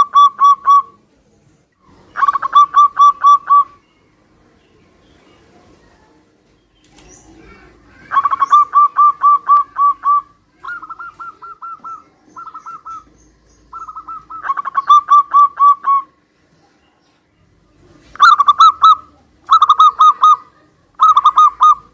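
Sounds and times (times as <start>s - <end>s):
doves cooing: 0.0s - 1.0s, 1.9s - 3.8s, 6.9s - 16.3s, 17.7s - 21.9s.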